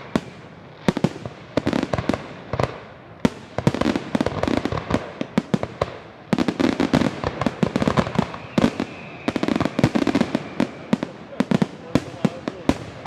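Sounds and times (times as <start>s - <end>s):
faint firework whistle: 0.0s - 0.5s, 6.4s - 13.0s
fireworks banging and crackling: 0.0s - 13.0s.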